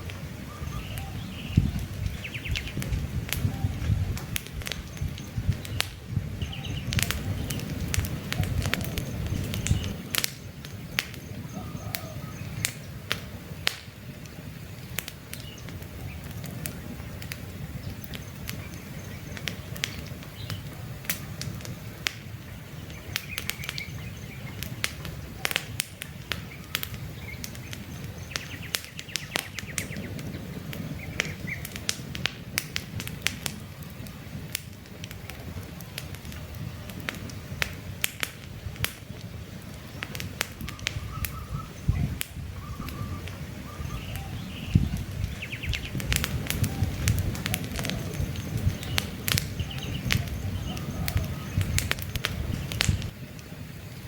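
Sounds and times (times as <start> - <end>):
campfire crackling and popping: 0.0 - 54.0
faint bird chirps: 0.5 - 2.8, 4.8 - 10.0, 10.8 - 12.7, 40.6 - 46.0, 46.6 - 51.9.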